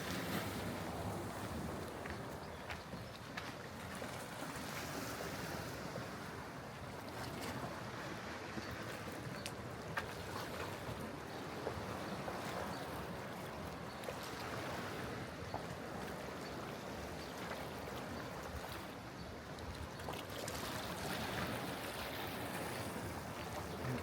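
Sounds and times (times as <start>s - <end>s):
sea water washing against rocks: 0.0s - 2.4s.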